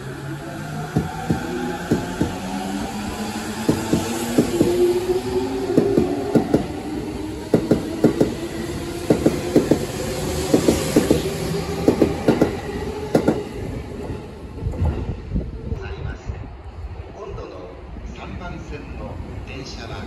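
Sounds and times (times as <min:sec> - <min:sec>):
electric train rumbling: 0:00.0 - 0:20.0
wheels clacking over rail joints: 0:03.7 - 0:04.8, 0:09.1 - 0:13.5.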